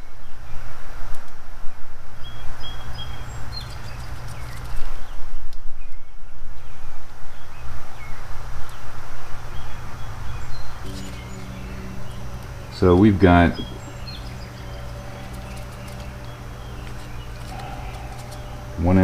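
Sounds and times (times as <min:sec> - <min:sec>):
small birds chirping: 0:01.6 - 0:19.0
steady low rumble: 0:09.6 - 0:19.0.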